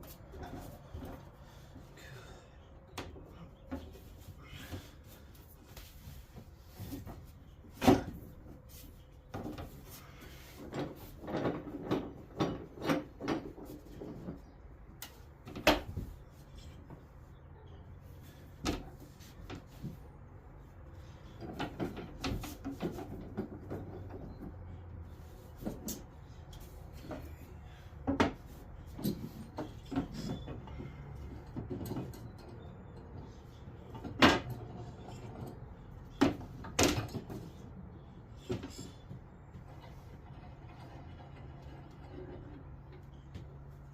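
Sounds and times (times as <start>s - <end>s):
wooden parts and tools knocking: 10.5s - 17.0s, 27.0s - 33.2s.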